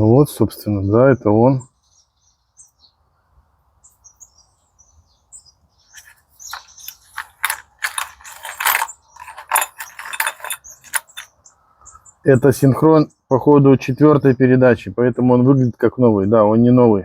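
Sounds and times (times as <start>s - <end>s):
steel parts clinking and rattling: 6.0s - 11.3s.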